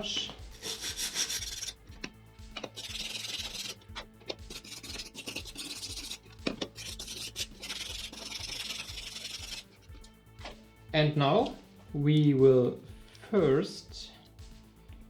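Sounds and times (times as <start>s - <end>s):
wire brush scrubbing plastic: 0.0s - 10.6s.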